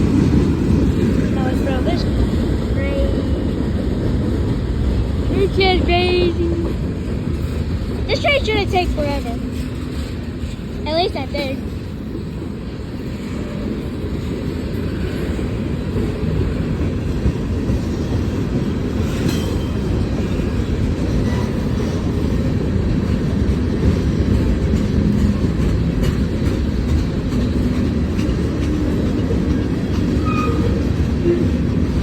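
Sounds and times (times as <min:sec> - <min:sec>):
freight train rumbling on rails: 0:00.0 - 0:32.0.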